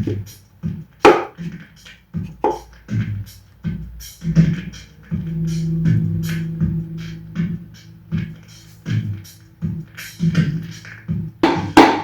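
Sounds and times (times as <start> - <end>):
drum-led percussive music: 0.0 - 12.0
held low note: 4.5 - 9.8.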